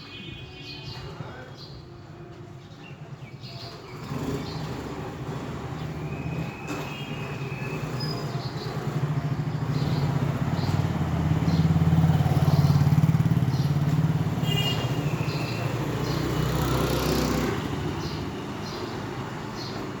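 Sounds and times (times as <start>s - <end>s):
vehicle engine passing: 8.8s - 14.5s, 15.1s - 18.3s.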